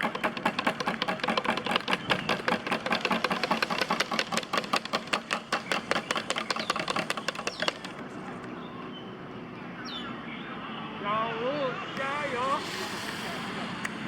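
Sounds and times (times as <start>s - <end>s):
steady hiss: 12.0s - 14.0s.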